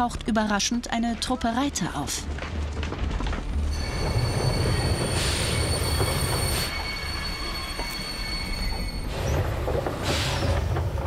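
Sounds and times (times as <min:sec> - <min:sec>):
low rumble of train: 0:01.8 - 0:11.0
wheels squealing on rails: 0:03.6 - 0:11.0.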